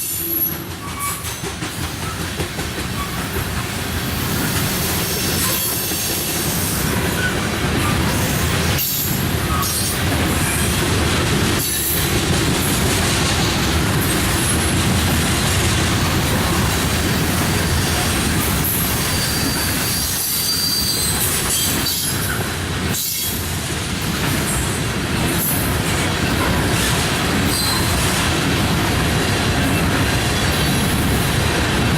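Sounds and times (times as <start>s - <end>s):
train cars rumbling on rails: 0.0s - 31.9s
wheels squealing: 17.7s - 22.4s.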